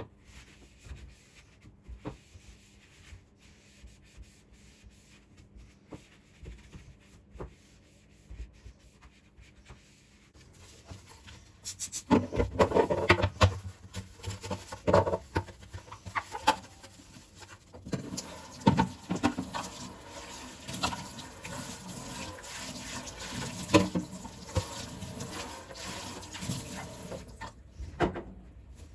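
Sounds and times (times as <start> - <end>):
tap running: 17.8 - 27.5.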